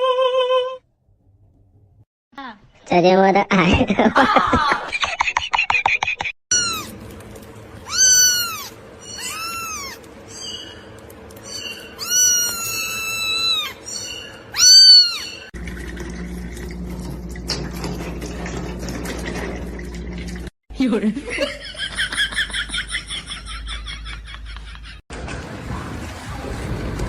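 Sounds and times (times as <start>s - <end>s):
cat meowing: 6.5s - 6.9s, 7.8s - 10.1s, 12.0s - 13.8s, 14.5s - 15.4s.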